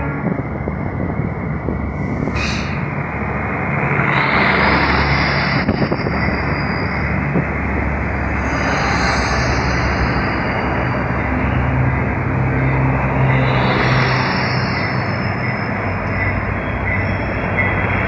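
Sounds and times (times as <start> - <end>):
diesel locomotive rumbling: 0.0 - 18.0
air hiss: 2.0 - 3.0.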